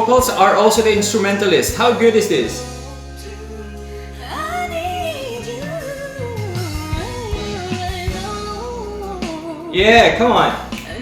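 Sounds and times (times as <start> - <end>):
held instrumental chords: 0.0 - 11.0
woman singing a slow ballad: 2.6 - 11.0.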